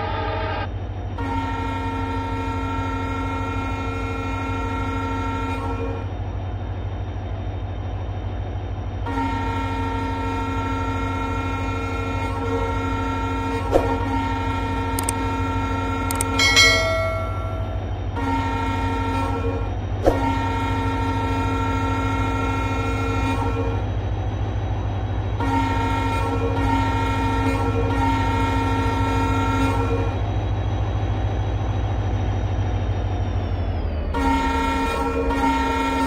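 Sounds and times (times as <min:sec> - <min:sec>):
train horn blasts: 0:00.0 - 0:06.1, 0:09.0 - 0:24.1, 0:24.8 - 0:30.8, 0:34.1 - 0:36.0
train rumbling: 0:00.0 - 0:36.0
sharp click: 0:16.1 - 0:16.5.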